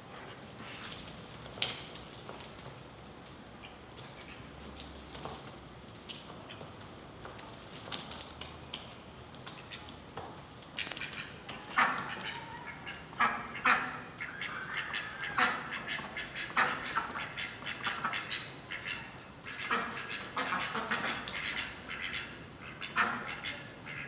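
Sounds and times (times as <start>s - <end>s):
birds squabbling and squawking: 10.8s - 24.0s.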